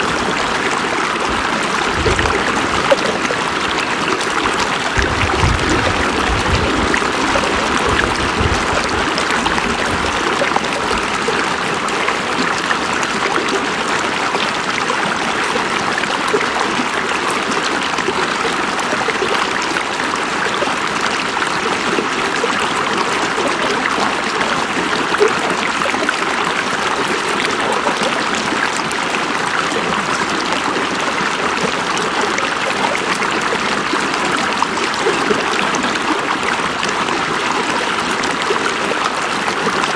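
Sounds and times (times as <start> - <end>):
river water flowing over rocks: 0.0 - 39.9
low rumble: 4.4 - 11.2.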